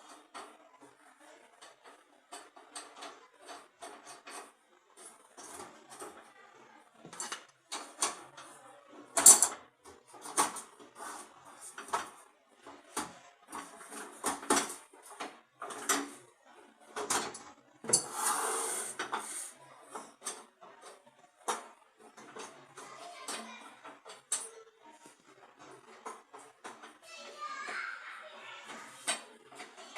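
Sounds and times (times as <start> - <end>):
metal parts clinking and knocking: 9.1 - 9.6
metal scraping: 17.9 - 19.5.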